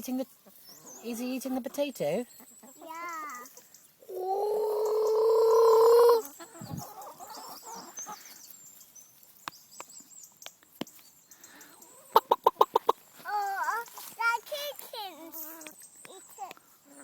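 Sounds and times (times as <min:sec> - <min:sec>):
chicken clucking: 0:00.3 - 0:08.9, 0:11.7 - 0:14.4
chicken drawn-out call: 0:02.6 - 0:08.4.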